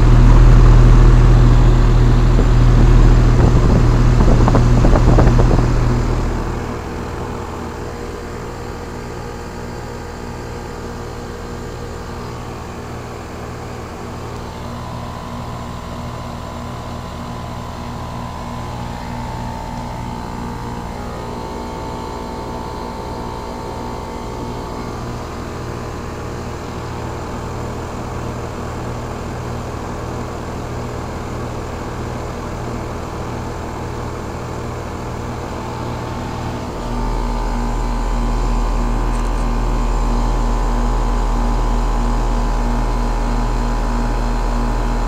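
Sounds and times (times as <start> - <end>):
low rumble: 0.0 - 8.5, 35.6 - 45.0
heat pump humming: 0.0 - 45.0.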